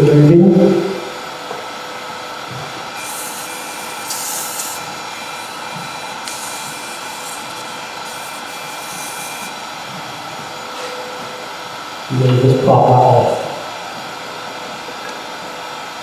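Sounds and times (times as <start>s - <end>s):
wood lathe whine: 0.8s - 12.1s
sandpaper hissing on spinning wood: 2.8s - 10.8s.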